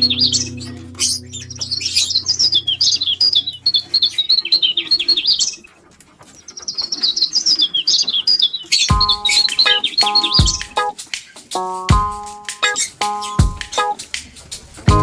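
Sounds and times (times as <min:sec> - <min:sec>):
lovebirds chirping: 0:06.8 - 0:10.6.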